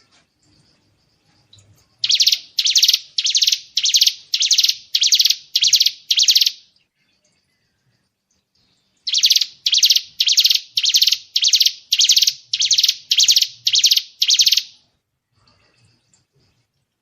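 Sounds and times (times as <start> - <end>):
songbird rattling call: 2.0 - 6.6, 9.1 - 14.7.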